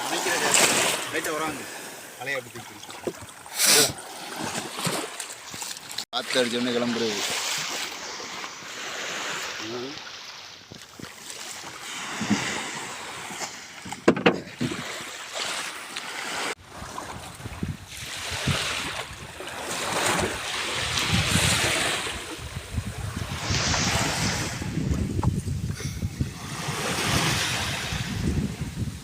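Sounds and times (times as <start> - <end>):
waves washing around boat: 0.0 - 29.0
sharp knocks: 13.9 - 14.7
wind buffeting microphone: 16.6 - 29.0.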